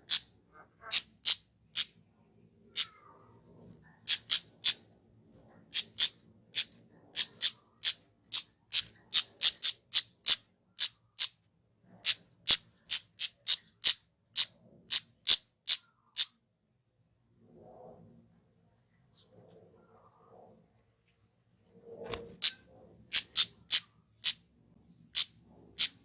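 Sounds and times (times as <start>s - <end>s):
bird chip calls: 0.0s - 2.0s, 2.7s - 3.0s, 4.1s - 4.8s, 5.7s - 11.4s, 12.0s - 16.4s, 22.3s - 24.4s, 25.1s - 26.0s.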